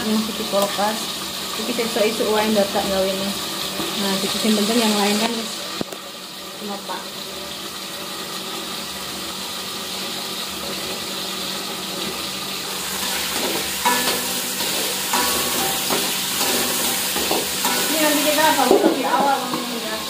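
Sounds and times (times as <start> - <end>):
food sizzling in oil: 0.0 - 20.0
metal wok lid clinks: 13.4 - 20.0.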